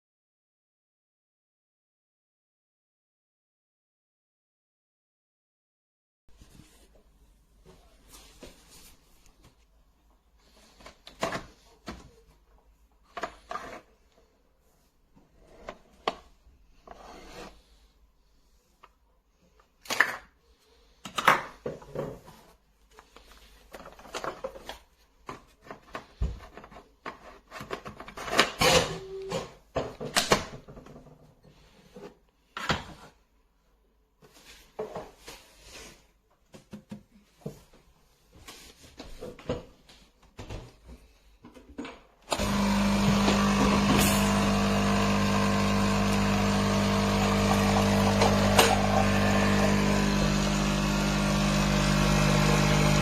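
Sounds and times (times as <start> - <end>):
rubbing scrapes: 16.8 - 18.5.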